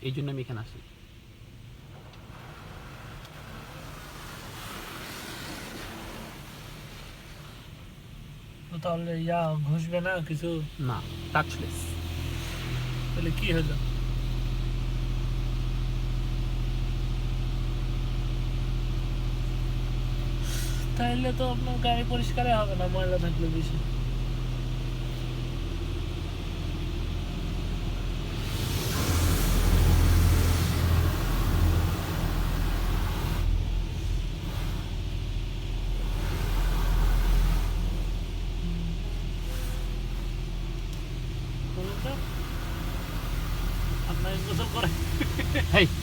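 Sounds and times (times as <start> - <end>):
car engine idling: 0.0 - 46.0
car wash machinery: 0.0 - 46.0
hiss of water spray: 2.2 - 8.0, 20.4 - 21.0, 28.2 - 35.1, 35.8 - 38.3, 41.8 - 46.0
low rumble: 21.0 - 46.0.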